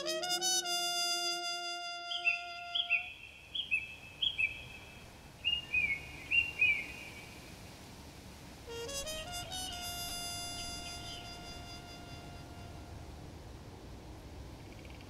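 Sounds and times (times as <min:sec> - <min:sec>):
held trumpet note: 0:00.0 - 0:03.1, 0:08.6 - 0:13.4
faint outdoor hiss: 0:00.0 - 0:15.0
bird chirping: 0:01.9 - 0:07.4.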